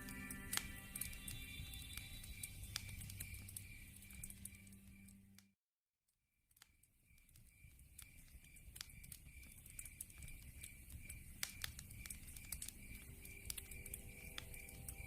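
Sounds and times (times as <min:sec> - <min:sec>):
regular high chirp: 0:00.0 - 0:05.3
log fire crackling and popping: 0:00.0 - 0:05.5, 0:06.6 - 0:15.0.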